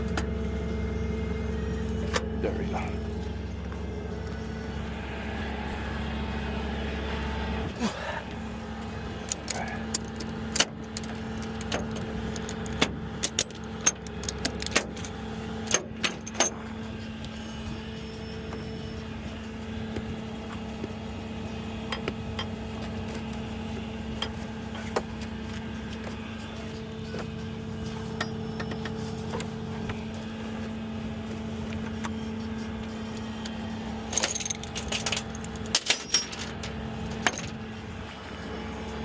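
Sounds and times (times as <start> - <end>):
truck engine humming: 0.0 - 39.0
metallic clicks and clanks: 9.2 - 16.6, 34.1 - 37.6.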